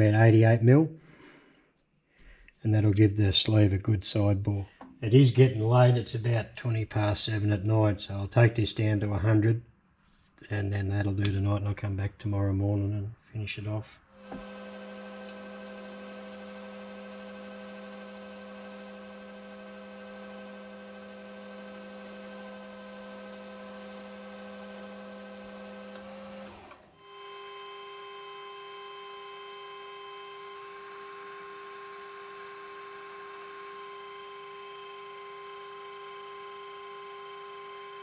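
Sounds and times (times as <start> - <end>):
metal lathe humming: 14.2 - 38.0.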